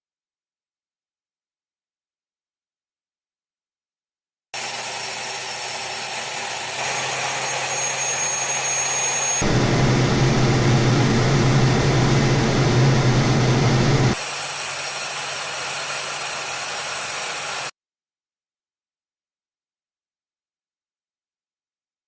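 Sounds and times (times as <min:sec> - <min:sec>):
jet engines running: 0:06.8 - 0:14.3
deep hum: 0:09.4 - 0:14.2.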